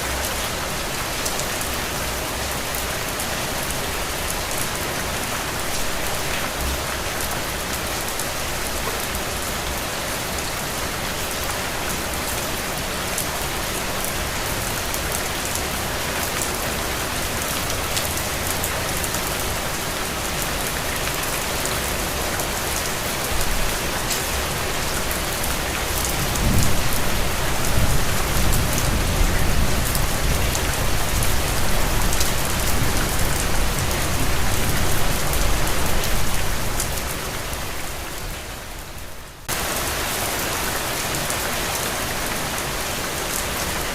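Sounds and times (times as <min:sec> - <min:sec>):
steady rain with dripping patter: 0:00.0 - 0:43.9.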